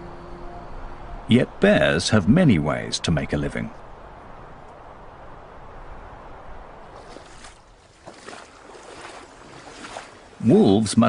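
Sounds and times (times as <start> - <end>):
rushing water: 0.0 - 11.0.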